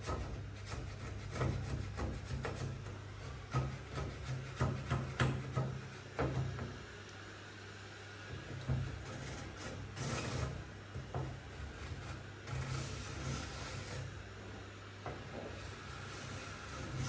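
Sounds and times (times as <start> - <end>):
hand tool rasping wood: 16.1 - 17.0.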